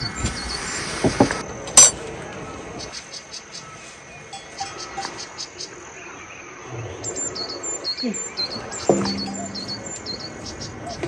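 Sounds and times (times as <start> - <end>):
livestock bells clinking: 4.3 - 5.4, 8.9 - 10.5
high bird chirps: 4.4 - 5.7, 7.4 - 11.0
sharp knock: 8.9 - 10.3.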